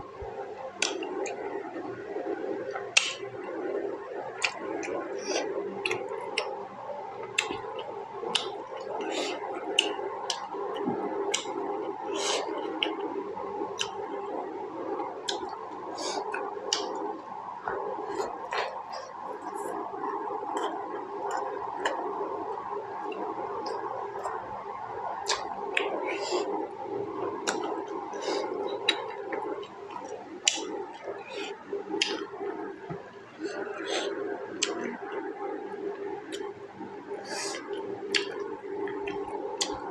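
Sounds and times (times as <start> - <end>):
steady background hum: 0.0 - 39.9
sharp mouth clicks: 0.8 - 1.5, 2.7 - 3.3, 4.4 - 6.6, 7.2 - 13.1, 13.8 - 14.4, 15.2 - 22.0, 25.2 - 26.5, 27.4 - 32.3, 33.4 - 35.3, 37.2 - 39.8
wet chewing and lip-smacking: 0.8 - 2.0, 2.7 - 3.7, 4.3 - 14.4, 15.0 - 24.4, 25.1 - 26.6, 27.2 - 39.9.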